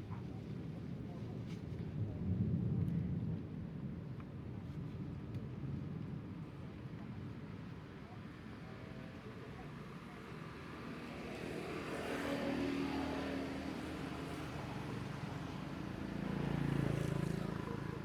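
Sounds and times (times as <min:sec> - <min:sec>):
motor vehicles passing by: 0:10.9 - 0:18.0.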